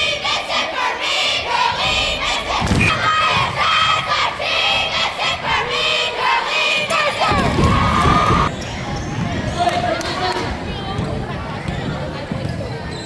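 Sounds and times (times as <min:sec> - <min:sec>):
crowd shouting and cheering: 0:00.0 - 0:11.0
thud: 0:01.7 - 0:04.1.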